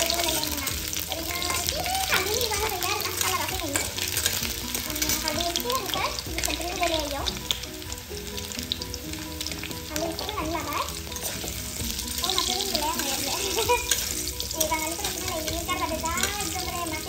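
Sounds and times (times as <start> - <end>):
spatula scraping metal pan: 0.0 - 6.5, 10.8 - 17.0
food sizzling in hot oil: 0.0 - 17.0.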